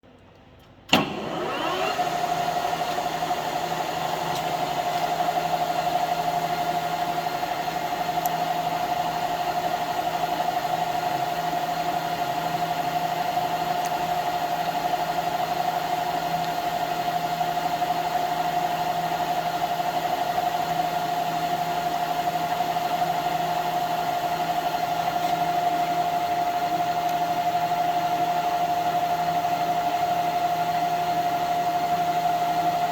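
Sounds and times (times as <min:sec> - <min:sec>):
lathe switch clunk: 0:00.9 - 0:01.8
lathe running with whine: 0:01.0 - 0:32.9.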